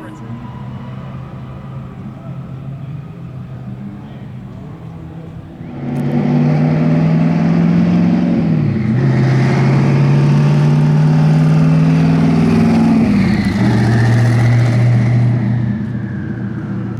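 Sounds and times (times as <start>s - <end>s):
car engine at full throttle: 5.6s - 16.9s.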